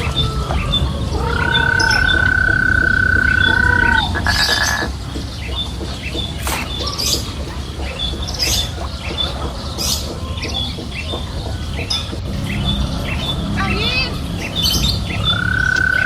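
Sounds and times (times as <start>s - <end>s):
animal squawks: 0.0s - 4.9s
animal chirps: 0.0s - 16.0s
low rumble: 0.0s - 16.0s.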